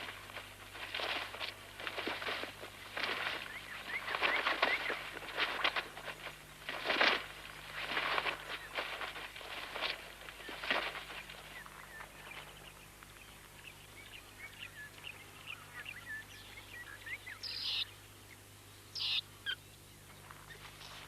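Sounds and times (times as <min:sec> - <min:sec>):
small bird chirps: 0:11.4 - 0:18.0, 0:18.9 - 0:19.7.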